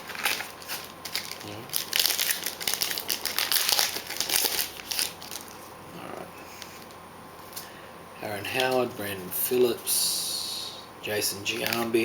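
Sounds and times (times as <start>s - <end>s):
wrapper crinkling: 0.0s - 5.7s, 11.5s - 12.0s.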